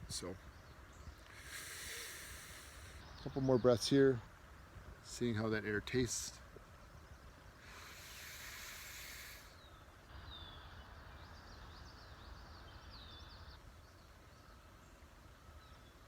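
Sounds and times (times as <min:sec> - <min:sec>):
faint bird chirps: 0:00.0 - 0:04.3, 0:05.0 - 0:16.0
breath drawn in: 0:01.3 - 0:03.0, 0:07.6 - 0:09.7.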